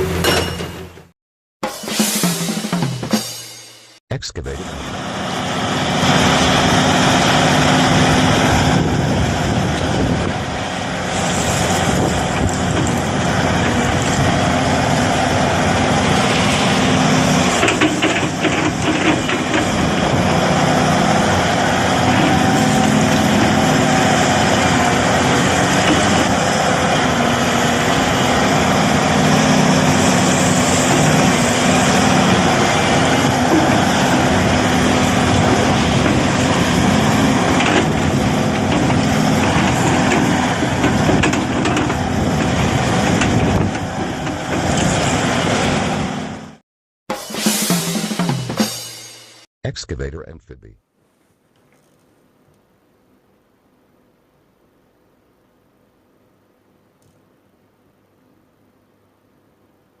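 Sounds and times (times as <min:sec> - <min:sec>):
excavator diesel engine running: 0:04.1 - 0:46.6.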